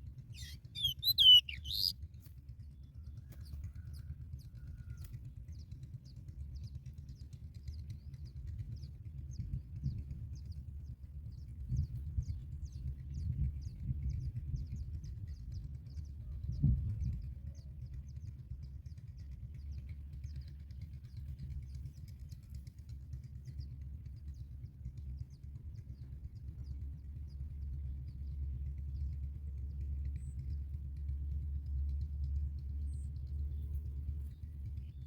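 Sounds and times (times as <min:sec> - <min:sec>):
high-pitched bird chirping: 0:00.4 - 0:01.9.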